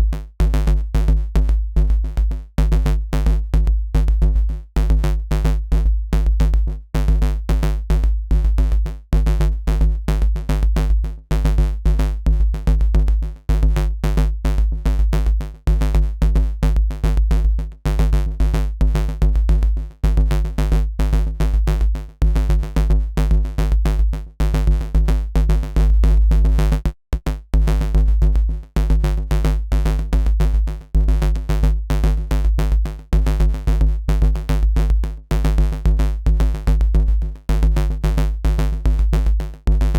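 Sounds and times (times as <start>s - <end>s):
deep sub-bass: 0.0s - 39.9s.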